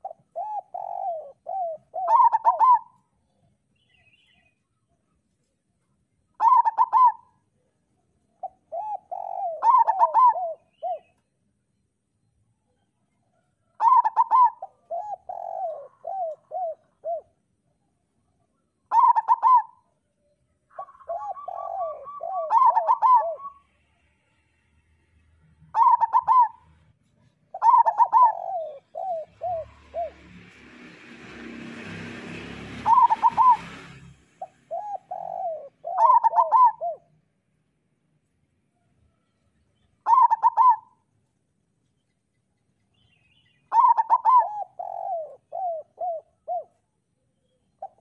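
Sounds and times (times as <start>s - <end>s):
dove cooing song: 0.0s - 3.2s, 6.3s - 11.3s, 12.7s - 17.6s, 18.6s - 20.1s, 20.7s - 23.8s, 25.6s - 37.2s, 39.8s - 41.1s, 43.6s - 48.0s.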